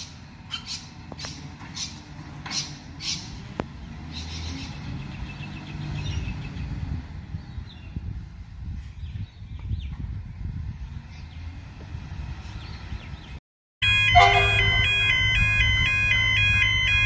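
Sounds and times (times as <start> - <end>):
diesel truck engine running: 13.8 - 17.0.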